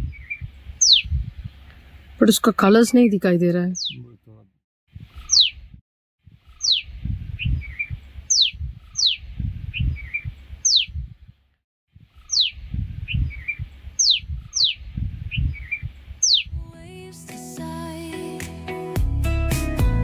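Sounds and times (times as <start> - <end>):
soft bird chirps: 0.0 - 3.1, 3.7 - 4.1, 5.0 - 5.8, 6.4 - 11.3, 12.0 - 16.7
bird whistle sliding downward: 5.3 - 5.6.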